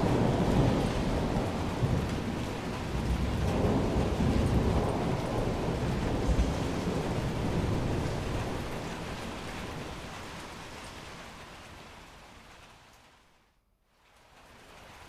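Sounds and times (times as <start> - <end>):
low rumble of thunder: 0.0 - 11.1
steady rain: 0.0 - 15.0.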